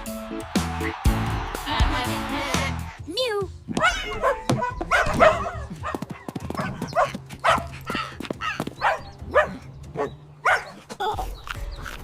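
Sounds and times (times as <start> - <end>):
dog barking: 3.8 - 10.8.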